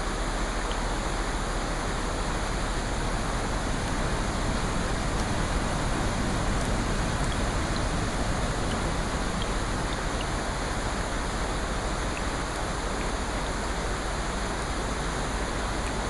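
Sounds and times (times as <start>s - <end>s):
steady rain: 0.0s - 16.0s
faint ticks: 6.1s - 10.4s.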